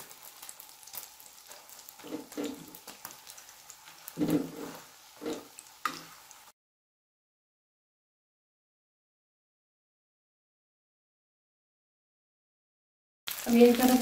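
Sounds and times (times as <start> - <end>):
faint frying sizzle: 0.0 - 6.6, 13.3 - 14.0
spatula scraping a pan: 1.4 - 3.0, 3.8 - 5.6.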